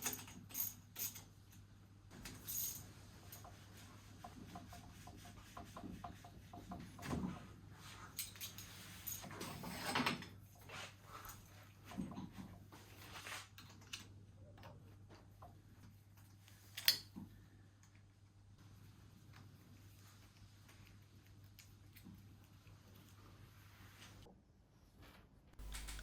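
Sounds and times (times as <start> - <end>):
tools and parts clicking: 0.0 - 1.6, 25.6 - 26.0.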